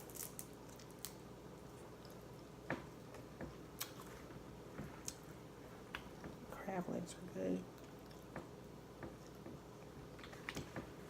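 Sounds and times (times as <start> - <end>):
chewing crab legs: 7.6 - 10.8.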